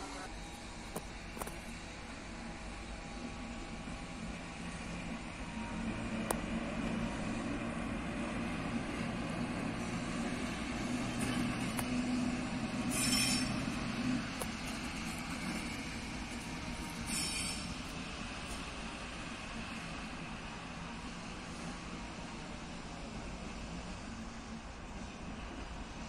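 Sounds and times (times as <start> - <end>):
train low hum: 0.0 - 26.0
high-pitched wheel squeal: 12.8 - 13.8, 16.9 - 17.9.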